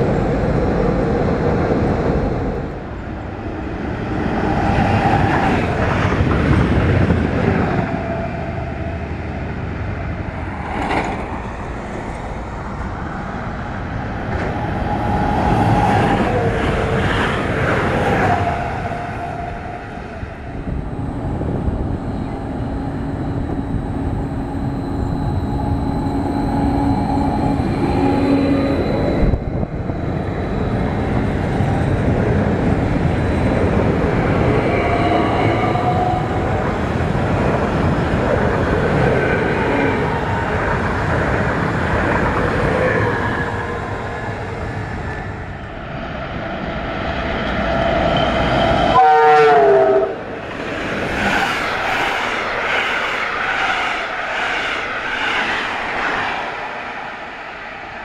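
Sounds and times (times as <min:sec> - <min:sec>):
train wheels rumbling on rail: 0:00.0 - 0:58.0
faint whining tones: 0:19.5 - 0:32.0.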